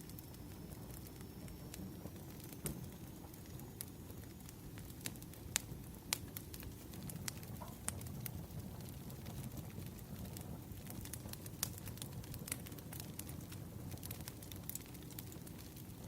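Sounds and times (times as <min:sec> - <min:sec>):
fire crackles and pops: 0:00.0 - 0:16.0
low rumble of flames: 0:00.0 - 0:16.0.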